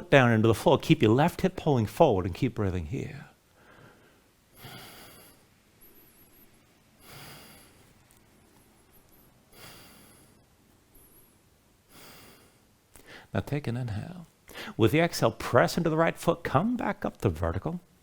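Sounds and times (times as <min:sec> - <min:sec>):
slow faint breathing: 0:03.5 - 0:13.4, 0:14.5 - 0:14.8.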